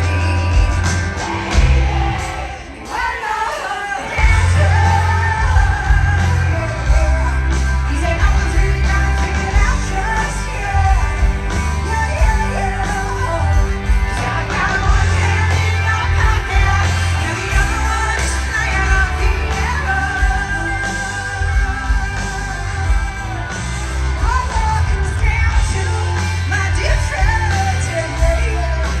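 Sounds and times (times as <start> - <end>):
live rock band playing: 0.0 - 29.0
woman singing: 1.2 - 22.5.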